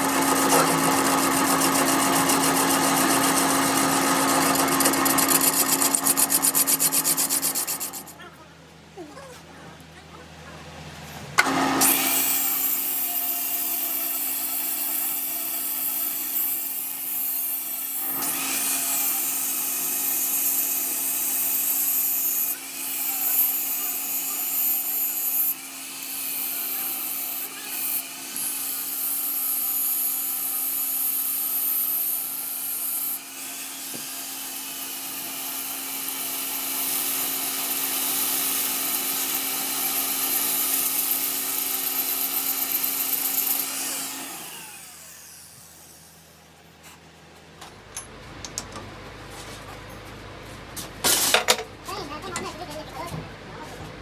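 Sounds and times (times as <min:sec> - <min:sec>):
power tool humming and hissing: 0:00.0 - 0:08.2, 0:11.4 - 0:46.4.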